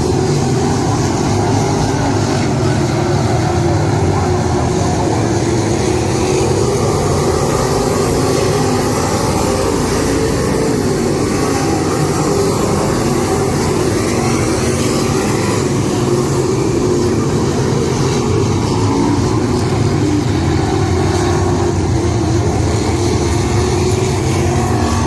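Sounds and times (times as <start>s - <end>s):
race car engines running: 0.0s - 25.0s.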